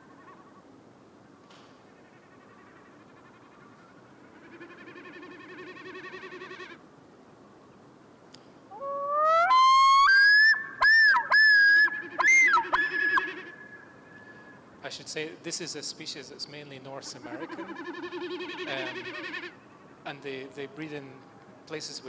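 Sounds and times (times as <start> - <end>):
loon calls: 8.7 - 14.6, 17.2 - 19.9.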